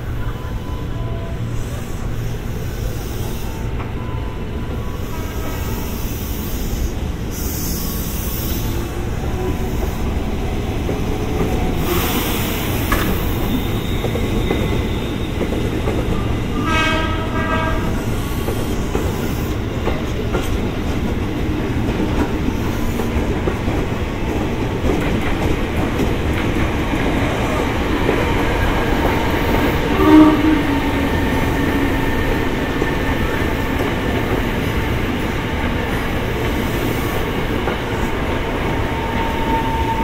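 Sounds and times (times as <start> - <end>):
electric train running past: 0.0 - 40.0
train horn blast: 5.0 - 6.0, 16.5 - 18.2, 29.6 - 31.6.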